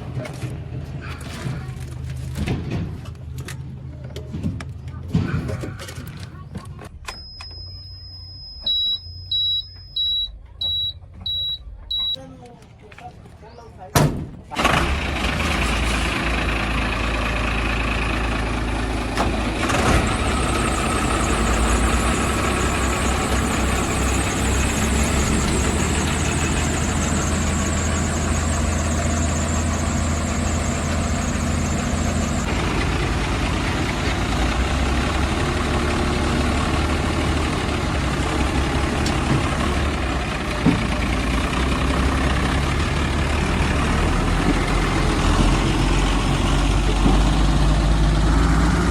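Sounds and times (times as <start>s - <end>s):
diesel engine running: 14.5s - 48.9s
high whine: 20.0s - 32.5s.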